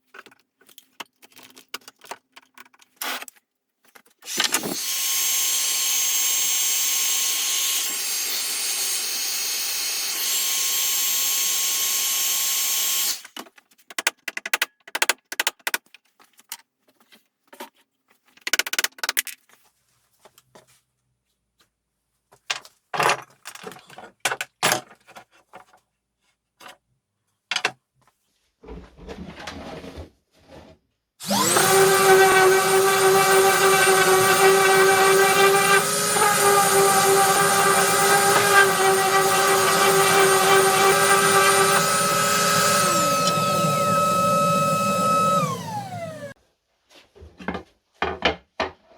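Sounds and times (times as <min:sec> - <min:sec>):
handheld power tool running: 0:04.3 - 0:13.2, 0:31.2 - 0:46.4
tools clicking and knocking: 0:13.4 - 0:16.7.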